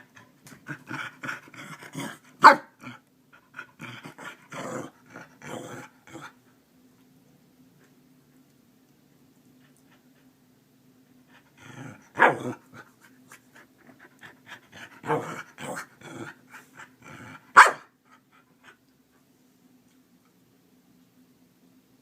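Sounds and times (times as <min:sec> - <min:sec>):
dog barking: 0:02.4 - 0:02.7, 0:12.2 - 0:12.4, 0:17.6 - 0:17.9
dog panting and whining: 0:12.7 - 0:15.5.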